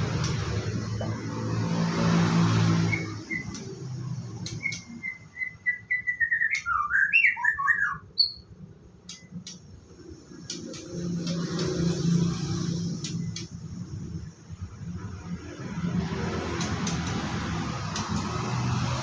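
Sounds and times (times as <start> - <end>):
songbird whistling and warbling: 2.8 - 3.8, 4.4 - 8.5
sharp clicks: 3.4 - 5.0, 9.0 - 12.1, 13.0 - 13.6, 16.5 - 19.0.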